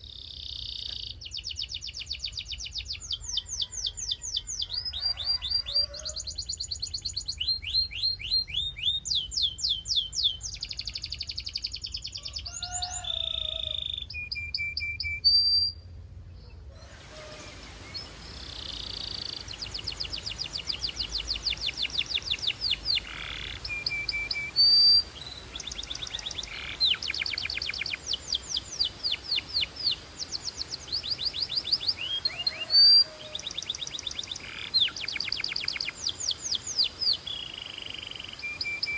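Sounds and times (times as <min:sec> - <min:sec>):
canary trilling: 0:17.2 - 0:38.9.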